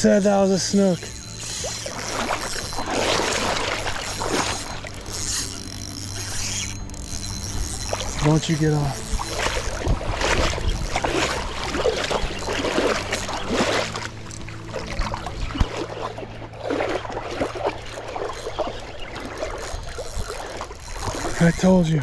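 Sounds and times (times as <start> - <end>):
splashing of shallow water: 0.0 - 22.0.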